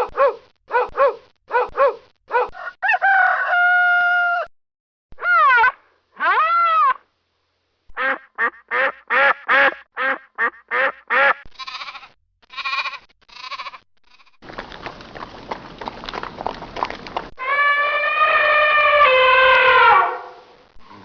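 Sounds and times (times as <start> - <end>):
rooster crowing: 2.5 - 4.5, 17.5 - 20.4
duck quacking: 8.0 - 11.9.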